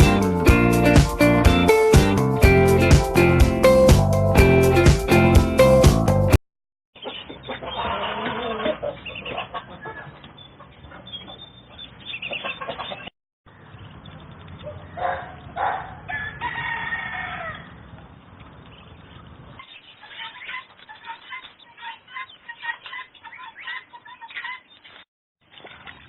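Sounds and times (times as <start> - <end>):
chickens clucking: 7.0 - 13.1, 19.5 - 26.0
rooster crowing: 16.0 - 17.7.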